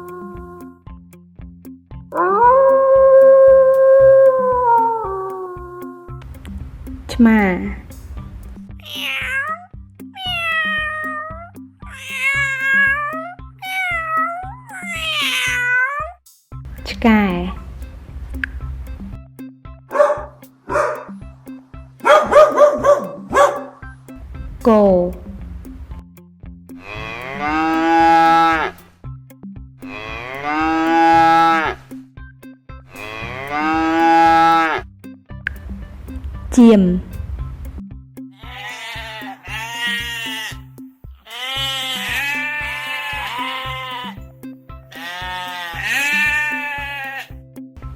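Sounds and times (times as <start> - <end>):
background music with beat: 0.4 - 8.9, 16.2 - 47.9
cat meowing: 8.8 - 16.2, 38.4 - 40.6, 41.3 - 44.2, 44.9 - 47.3
cow mooing: 19.9 - 21.1, 26.8 - 28.8, 29.8 - 31.8, 32.9 - 34.8, 41.3 - 44.3, 44.9 - 47.3.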